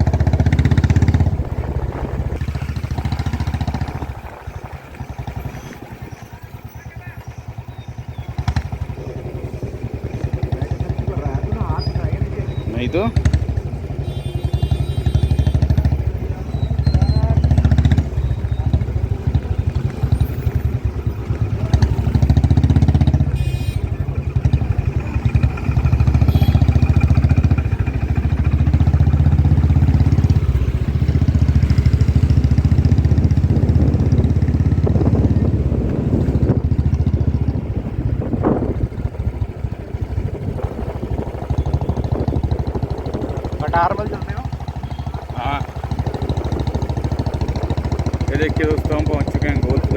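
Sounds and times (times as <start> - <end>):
motorcycle engine: 0.0 - 49.9
road noise: 0.0 - 49.9.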